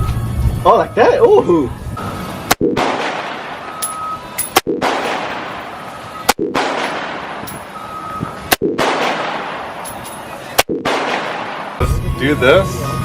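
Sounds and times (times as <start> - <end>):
gunshots with echo: 2.5 - 3.6, 4.5 - 7.5, 8.5 - 9.9, 10.6 - 11.8.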